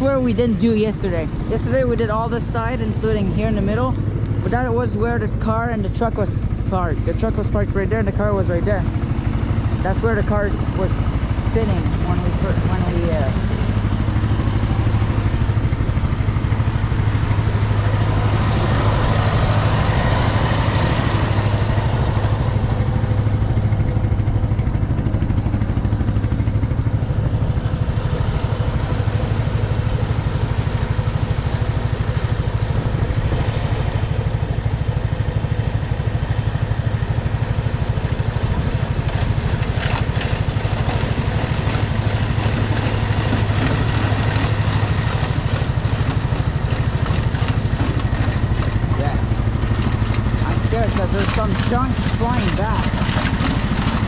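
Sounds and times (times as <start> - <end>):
tractor engine running: 0.0 - 54.0
thrown snow rushing: 38.3 - 54.0.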